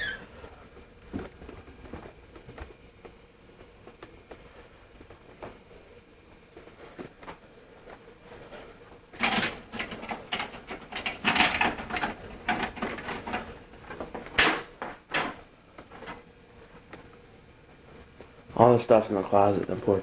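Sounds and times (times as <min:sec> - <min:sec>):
objects knocking and clicking: 0:09.2 - 0:16.2.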